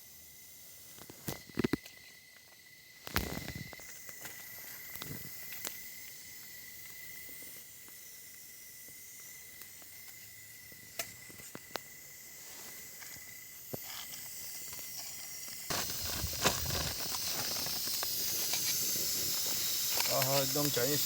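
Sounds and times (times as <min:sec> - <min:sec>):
bonfire crackling: 0:15.7 - 0:21.0.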